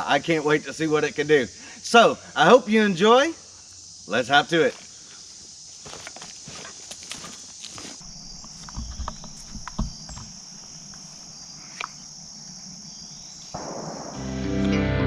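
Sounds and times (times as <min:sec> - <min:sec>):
insects trilling: 0:00.0 - 0:14.3
dull thumps: 0:08.1 - 0:10.4.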